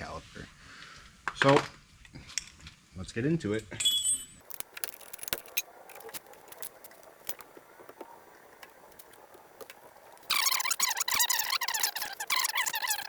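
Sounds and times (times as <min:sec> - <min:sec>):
metal tools clicking: 0:04.4 - 0:07.5
squeaking rasping scrape: 0:04.4 - 0:13.0.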